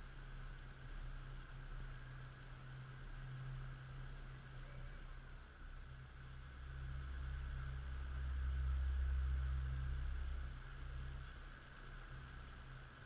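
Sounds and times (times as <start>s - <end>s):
faint hiss: 0.0s - 13.0s
steady low hum: 0.0s - 13.0s
deep low rumble: 4.6s - 13.0s.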